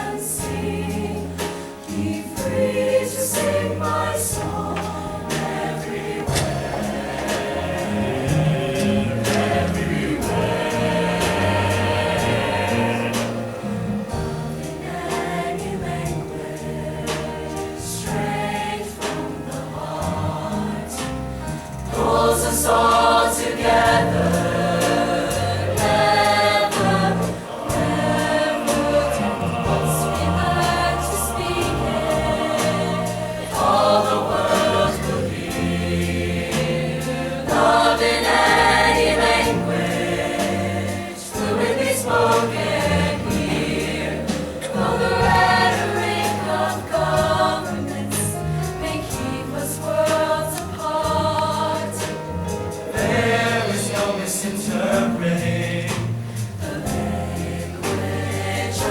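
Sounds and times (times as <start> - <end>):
choir singing: 0.0 - 58.9
instrumental accompaniment: 0.0 - 58.9.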